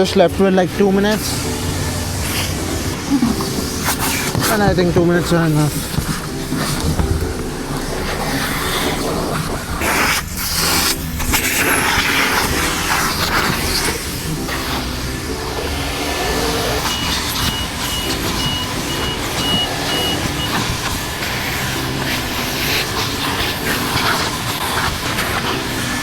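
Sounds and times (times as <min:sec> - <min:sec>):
pressure wand spraying water: 0:00.4 - 0:26.0
pump humming: 0:15.0 - 0:25.2
short high beeps: 0:16.9 - 0:20.6.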